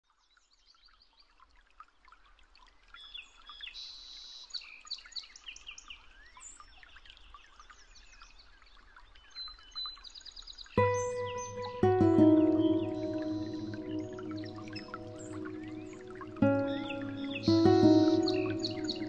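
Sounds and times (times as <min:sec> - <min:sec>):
small birds chirping and trilling: 0:09.1 - 0:19.0.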